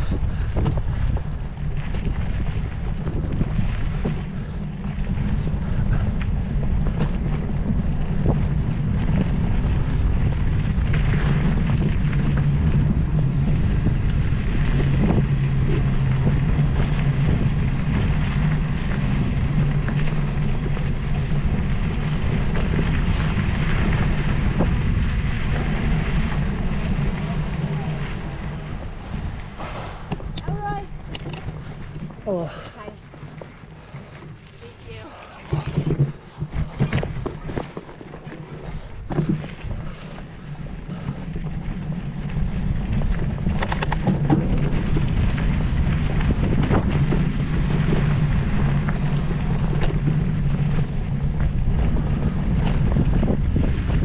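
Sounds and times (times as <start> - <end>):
wind buffeting microphone: 0.0 - 54.0
light clicks and rattles: 30.1 - 39.4.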